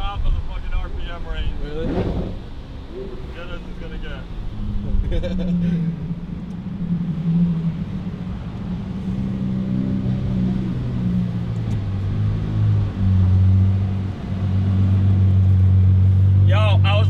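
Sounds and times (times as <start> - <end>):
car engine droning: 0.0 - 17.0.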